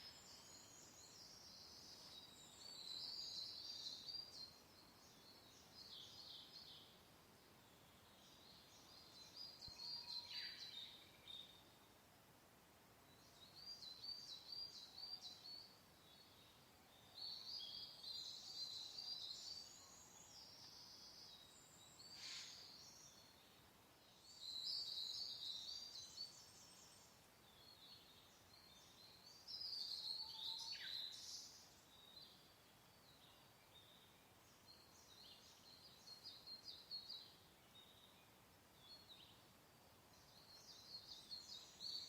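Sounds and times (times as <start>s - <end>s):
songbirds singing: 0.0s - 12.1s, 12.9s - 42.0s
faint steady hiss: 0.0s - 42.0s.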